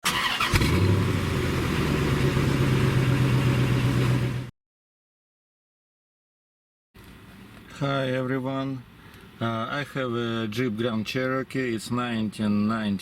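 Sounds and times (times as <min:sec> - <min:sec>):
car engine idling: 0:00.9 - 0:04.5.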